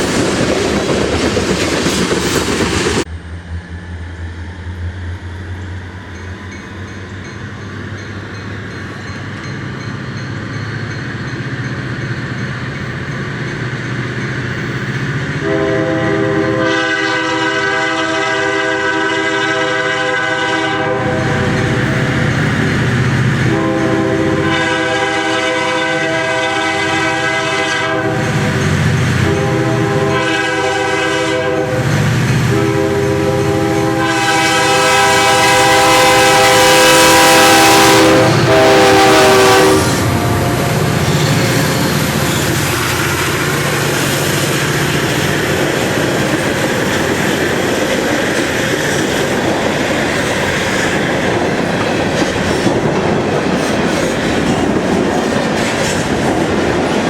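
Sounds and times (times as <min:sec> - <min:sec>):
locomotive engine and wheel rumble: 0:00.0 - 0:16.8, 0:28.2 - 0:57.0
train air horn blasts: 0:15.4 - 0:22.4, 0:23.4 - 0:43.9.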